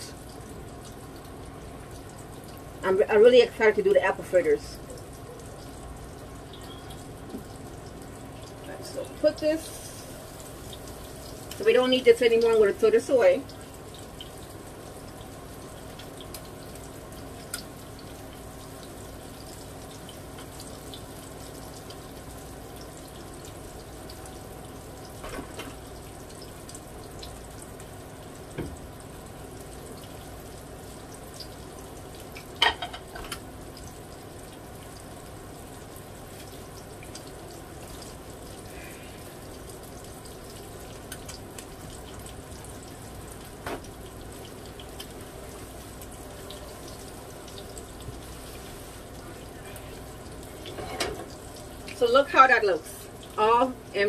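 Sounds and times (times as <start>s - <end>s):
fish frying in oil sizzling: 0.0s - 54.0s.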